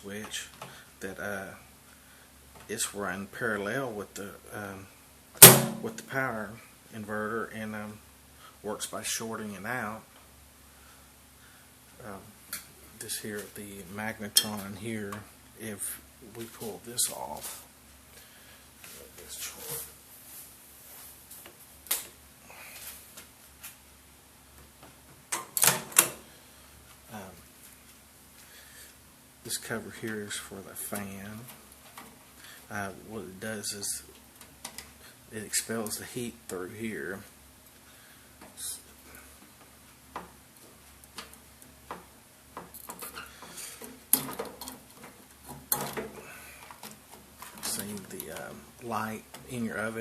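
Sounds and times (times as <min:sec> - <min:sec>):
fan cover clicking and rattling: 0:43.8 - 0:48.5.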